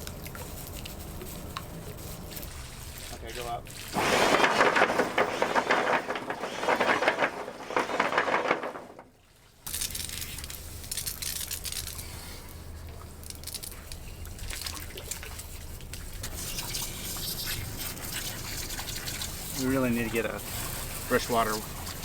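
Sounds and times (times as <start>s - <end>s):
hose water spraying and splashing: 16.2s - 22.0s.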